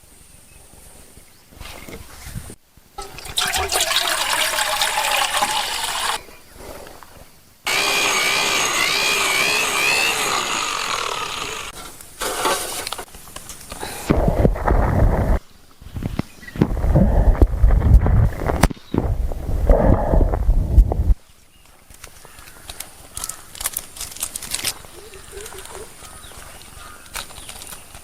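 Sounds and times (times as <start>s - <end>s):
rain and running water: 3.0s - 6.2s.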